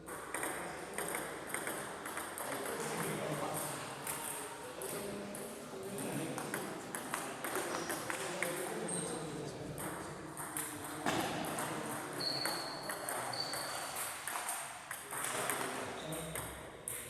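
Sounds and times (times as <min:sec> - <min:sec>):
murmur of voices: 0:02.0 - 0:12.2.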